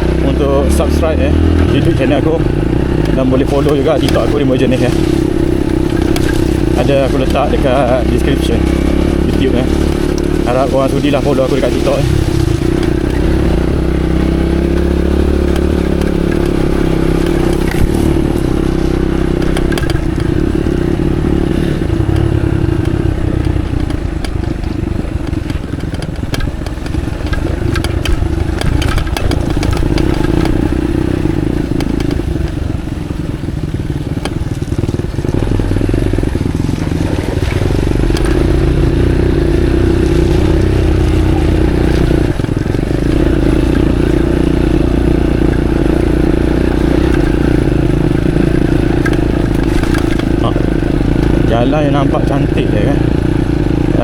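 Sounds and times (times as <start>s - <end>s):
bike clattering over bumps: 0.0s - 54.0s
motorcycle engine running: 0.0s - 54.0s.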